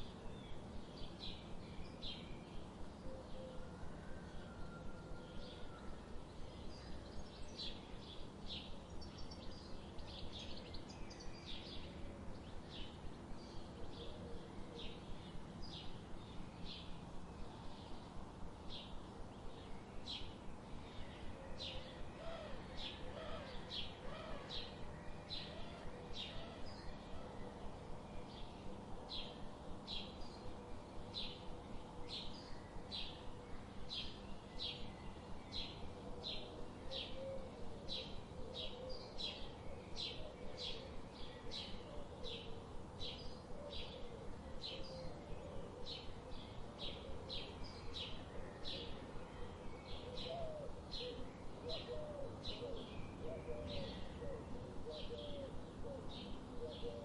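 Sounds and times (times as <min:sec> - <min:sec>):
steady background hiss: 0:00.0 - 0:57.0
lower wavering bird calls: 0:19.8 - 0:57.0.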